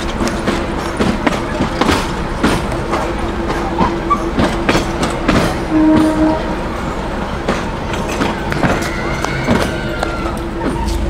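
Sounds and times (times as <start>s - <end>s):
train wheels clattering over rail joints: 0.0s - 11.0s
train horn toot: 5.7s - 6.8s.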